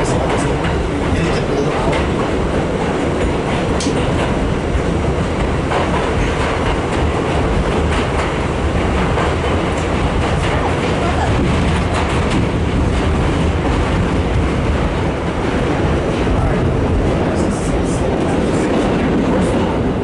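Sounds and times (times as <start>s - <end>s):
subway train rumbling in tunnel: 0.0s - 20.0s
wheels clacking over rail joints: 0.0s - 20.0s.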